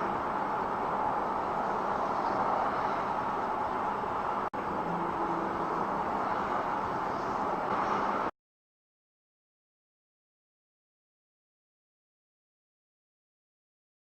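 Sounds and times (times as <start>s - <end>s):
car road and engine noise: 0.0s - 8.3s.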